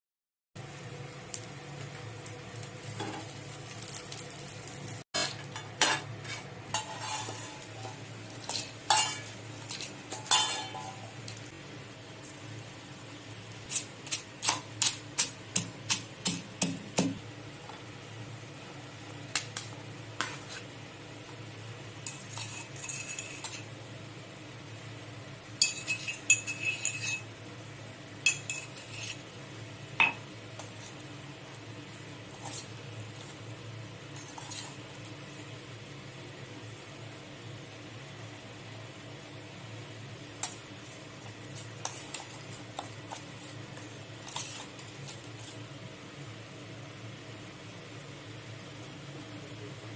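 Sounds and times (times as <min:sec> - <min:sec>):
utensils clinking against dishes: 0:05.2 - 0:11.4, 0:22.0 - 0:23.7, 0:25.6 - 0:27.3, 0:28.3 - 0:29.2.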